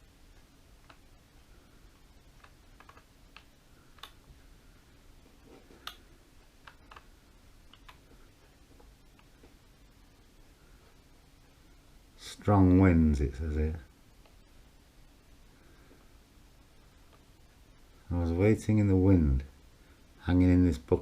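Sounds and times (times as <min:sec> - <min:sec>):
faint clicks and taps: 0:00.3 - 0:01.3, 0:01.9 - 0:04.6, 0:05.2 - 0:11.6, 0:14.1 - 0:14.6, 0:15.9 - 0:17.7.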